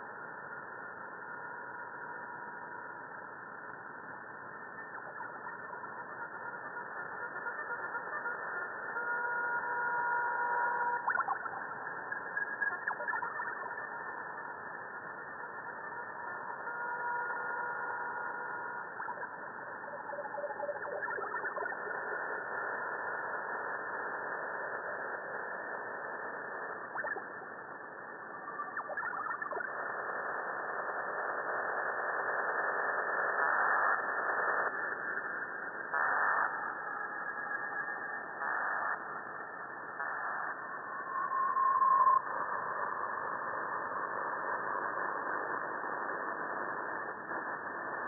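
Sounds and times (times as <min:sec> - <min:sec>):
faint steady tones: 0:00.0 - 0:48.0
shortwave radio hiss: 0:21.9 - 0:37.3, 0:38.2 - 0:48.0
bursts of static: 0:42.2 - 0:48.0.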